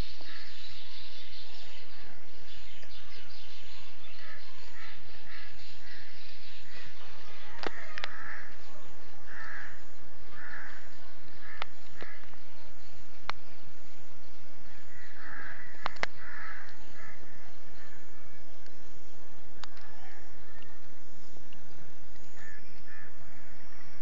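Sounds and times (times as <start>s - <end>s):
bird calling: 0.0s - 18.7s, 19.6s - 24.0s
sharp clicks: 15.7s - 16.8s.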